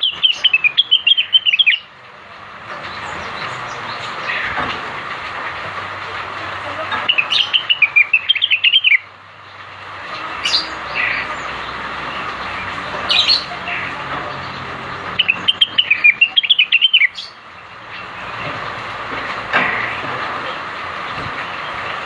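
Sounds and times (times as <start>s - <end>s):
bird singing warbling notes: 0.0s - 1.9s, 7.1s - 9.1s, 10.2s - 17.4s.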